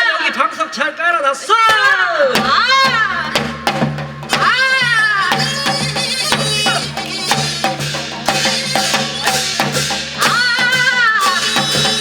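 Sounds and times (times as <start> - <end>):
quick drum strokes: 1.6 - 12.0
long voice-like call: 4.8 - 12.0.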